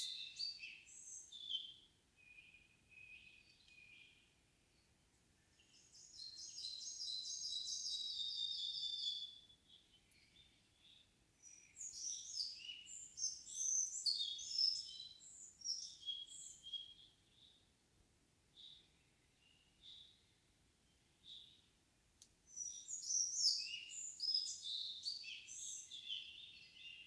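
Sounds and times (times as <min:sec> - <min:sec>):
bird warbling song: 0:00.0 - 0:04.2, 0:10.1 - 0:17.6, 0:22.6 - 0:27.0
songbird trill: 0:00.0 - 0:17.7, 0:18.5 - 0:21.7, 0:22.5 - 0:27.0.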